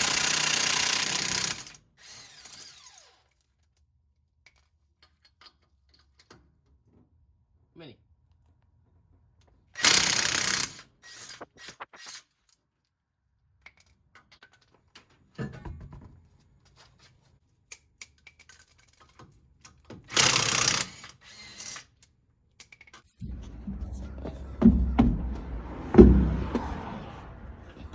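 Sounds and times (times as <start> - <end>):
power tool bursts: 20.1 - 21.8.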